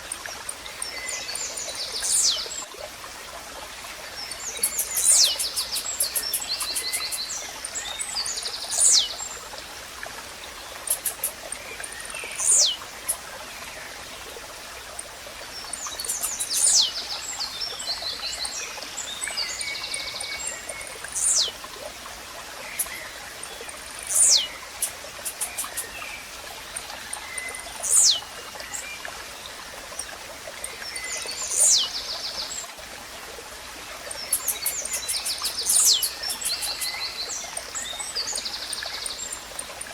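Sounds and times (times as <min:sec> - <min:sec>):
faint water trickle: 0:00.0 - 0:39.9
other birds chirping: 0:04.5 - 0:07.3, 0:10.8 - 0:13.2, 0:15.8 - 0:16.9, 0:24.0 - 0:26.0, 0:34.2 - 0:37.2.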